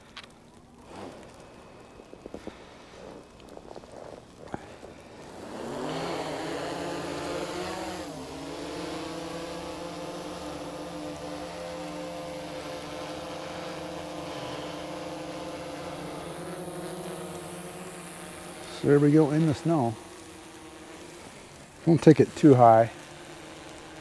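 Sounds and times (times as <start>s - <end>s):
drone propellers buzzing: 0.8s - 24.0s.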